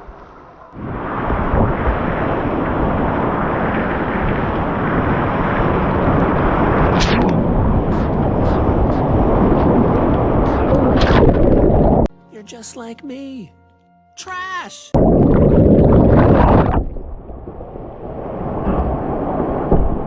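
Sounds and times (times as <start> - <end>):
sharp water splashes: 0.8 - 12.1
whitewater rushing and splashing: 0.8 - 12.1.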